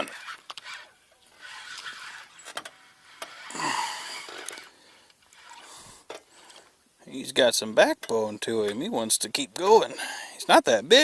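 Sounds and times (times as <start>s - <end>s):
fishing reel whirring: 0.0s - 6.7s.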